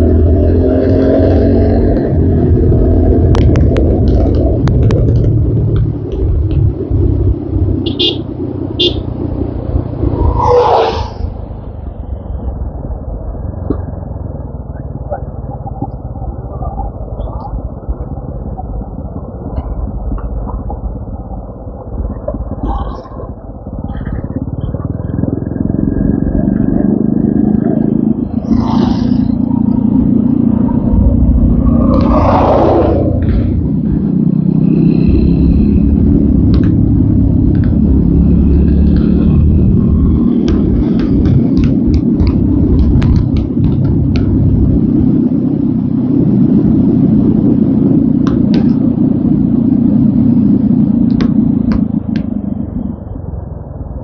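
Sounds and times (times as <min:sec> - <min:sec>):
wind rumble: 0:00.0 - 0:54.0
motorcycle engine running: 0:13.7 - 0:31.9, 0:33.1 - 0:54.0.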